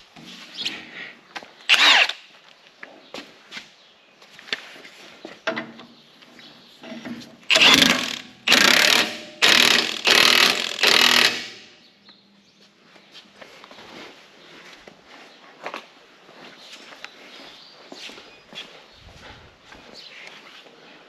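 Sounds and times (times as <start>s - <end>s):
impact wrench bursts: 1.7s - 2.2s, 7.5s - 11.8s.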